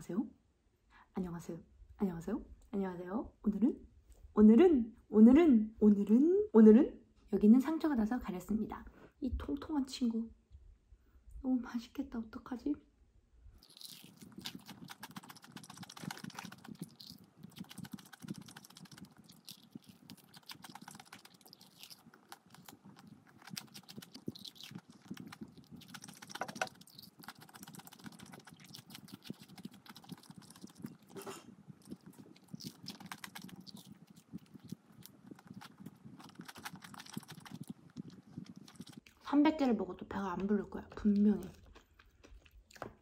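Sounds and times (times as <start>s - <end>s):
chewing crispy fried chicken: 13.6s - 39.3s, 40.8s - 43.0s.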